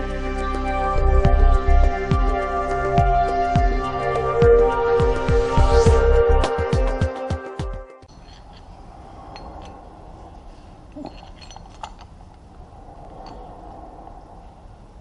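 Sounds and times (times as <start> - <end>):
music: 0.0 - 8.1
light clinks: 8.1 - 10.0, 10.8 - 14.1.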